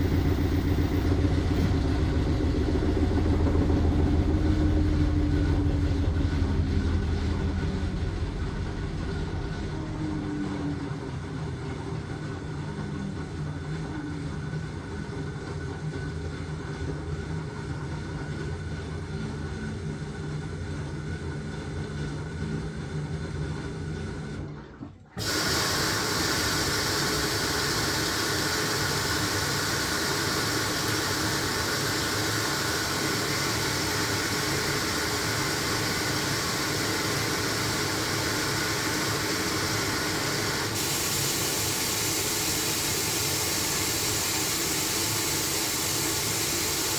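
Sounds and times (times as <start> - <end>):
washing machine rushing hiss: 0.0 - 11.0, 25.2 - 46.9
washing machine motor hum: 0.0 - 12.7, 25.2 - 46.9.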